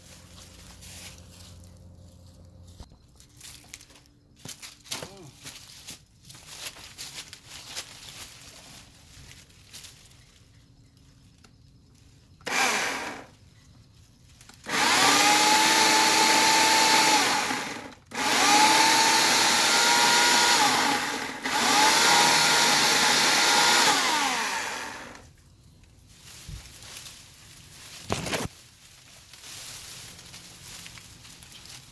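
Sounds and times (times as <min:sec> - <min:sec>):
electric chainsaw whining: 0:12.4 - 0:13.4, 0:14.6 - 0:25.3.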